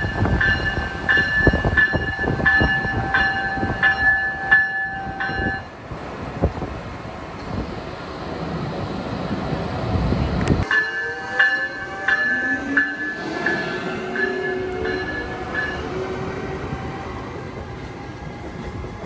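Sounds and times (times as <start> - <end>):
locomotive bell ringing: 0.0 - 5.8, 10.6 - 17.2
train rumbling past: 0.0 - 19.0.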